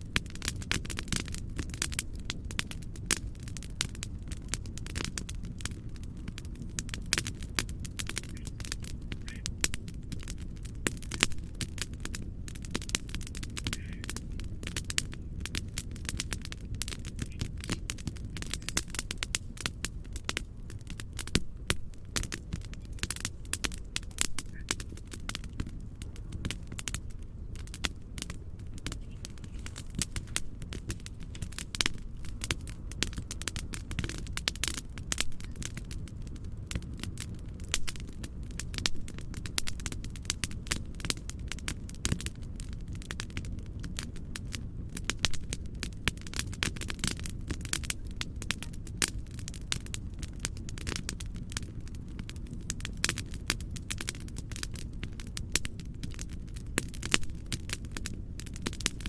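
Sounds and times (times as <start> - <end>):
wood fire crackling and popping: 0.0 - 59.0
low rumble: 7.8 - 39.9.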